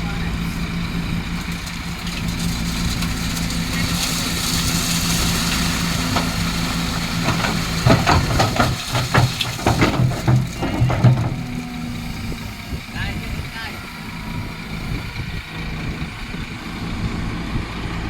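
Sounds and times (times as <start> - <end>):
voices: 0.0 - 1.9, 5.8 - 16.5
diesel engine of heavy machinery: 0.0 - 18.0.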